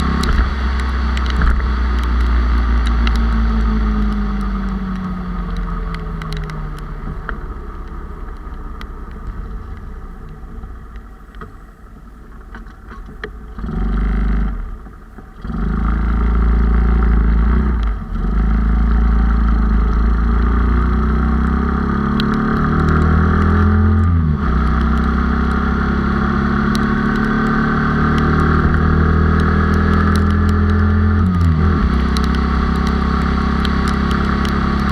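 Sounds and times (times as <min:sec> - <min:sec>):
motorcycle engine while riding: 0:00.0 - 0:34.9.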